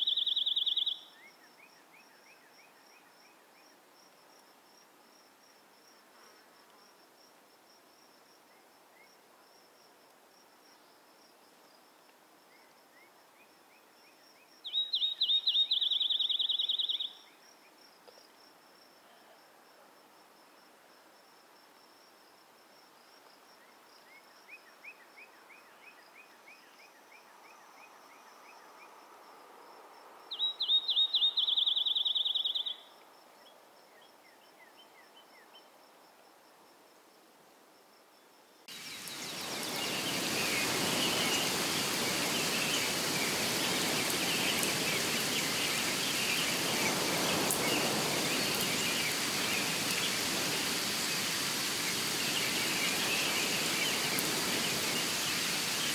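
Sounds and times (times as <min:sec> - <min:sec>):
small bird chirps: 0:00.0 - 0:03.1, 0:14.6 - 0:17.4, 0:30.3 - 0:33.0
rushing water: 0:38.7 - 0:55.9.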